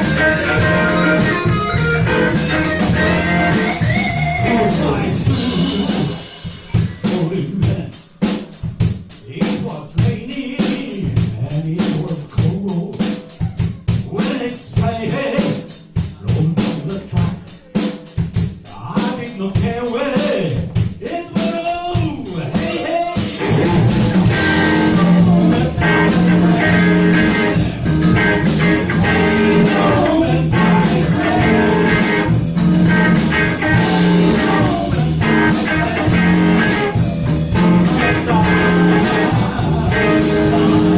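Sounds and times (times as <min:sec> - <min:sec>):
electric guitar: 0:00.0 - 0:07.0, 0:23.2 - 0:40.9
drum kit beat: 0:00.0 - 0:40.9.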